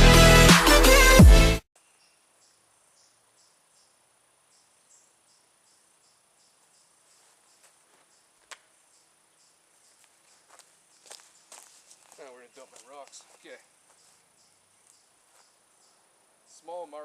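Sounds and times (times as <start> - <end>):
intro music: 0.0 - 1.6
faint crickets chirping: 1.8 - 17.0.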